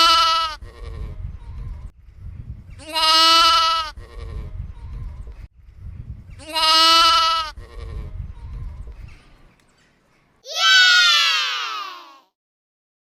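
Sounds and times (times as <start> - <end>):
sheep bleating: 0.0 - 1.1, 2.8 - 4.4, 6.4 - 8.0.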